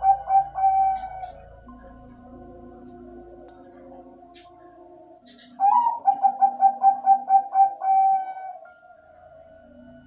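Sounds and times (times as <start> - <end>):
dove cooing: 0.0 - 2.1, 5.2 - 8.9.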